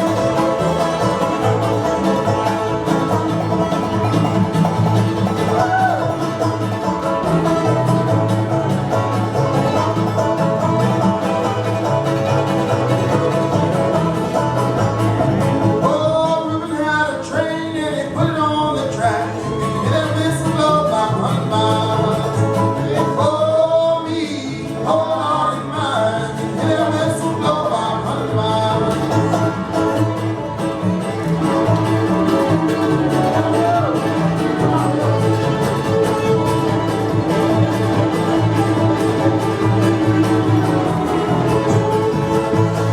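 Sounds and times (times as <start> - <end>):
acoustic string band playing: 0.0 - 42.9
voices singing: 15.1 - 42.9.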